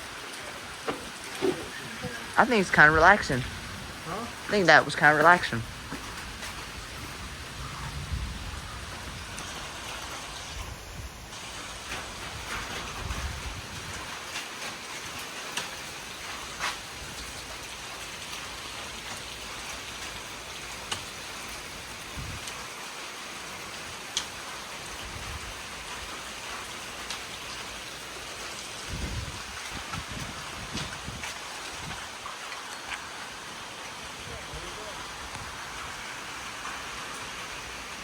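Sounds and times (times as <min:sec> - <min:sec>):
light rain falling: 0:00.0 - 0:38.0
wind buffeting microphone: 0:05.6 - 0:14.2, 0:22.1 - 0:22.4, 0:28.8 - 0:32.3.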